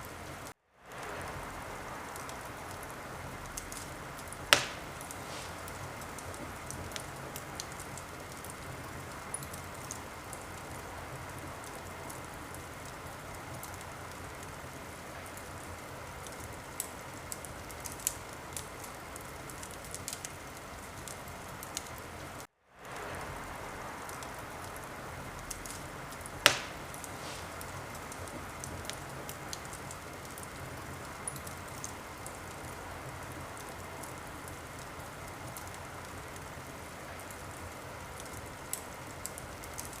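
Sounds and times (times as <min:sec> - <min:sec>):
wood fire crackling: 0:00.0 - 0:40.0
sharp pops of fire: 0:02.1 - 0:10.8, 0:24.0 - 0:34.6.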